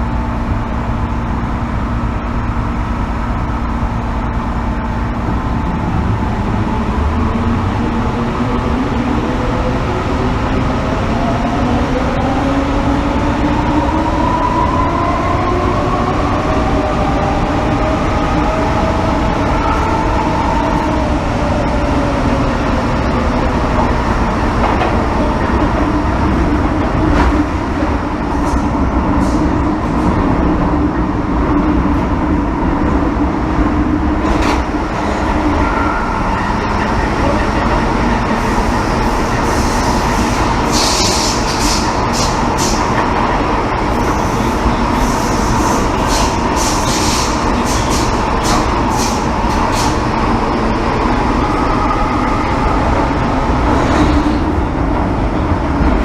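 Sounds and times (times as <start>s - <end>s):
wheel and track rumble: 0.0s - 56.0s.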